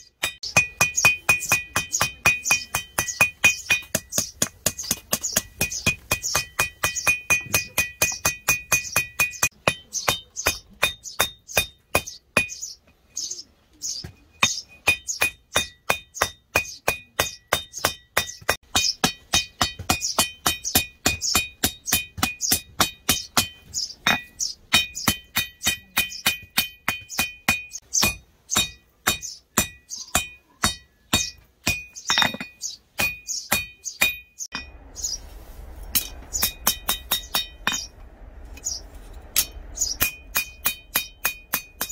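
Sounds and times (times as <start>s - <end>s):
metallic anvil ring: 0.1s - 12.8s, 14.3s - 35.2s, 35.8s - 41.9s
hammer blows on anvil: 35.8s - 41.9s.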